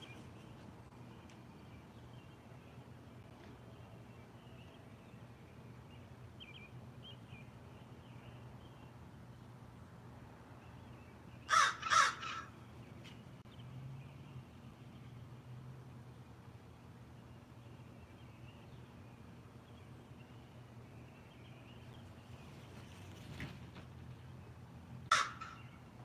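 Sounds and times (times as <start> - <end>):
crow cawing: 11.5 - 12.5, 25.1 - 25.8.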